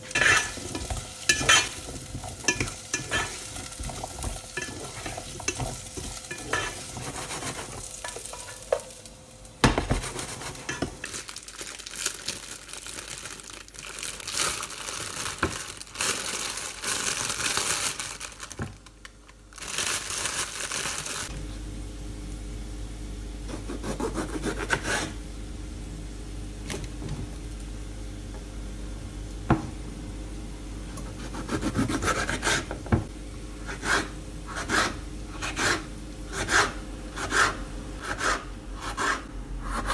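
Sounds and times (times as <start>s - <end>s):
utensil stirring and scraping: 0.0s - 8.8s, 9.9s - 10.9s, 33.7s - 39.9s
food sizzling in a pan: 0.0s - 12.4s.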